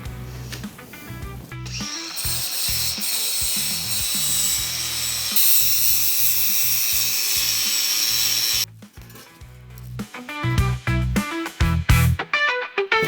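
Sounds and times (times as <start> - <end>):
background music with bass: 0.0 - 5.3, 8.5 - 13.0
power tool on metal: 1.6 - 8.7.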